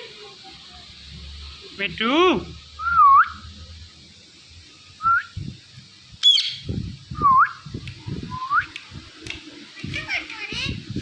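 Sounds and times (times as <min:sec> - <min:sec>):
shrill bird call: 0:06.2 - 0:06.7
parakeet whistling: 0:06.2 - 0:07.6.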